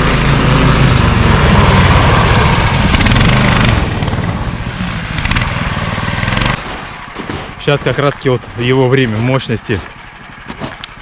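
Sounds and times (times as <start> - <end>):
snow vehicle engine running hard: 0.0 - 11.0.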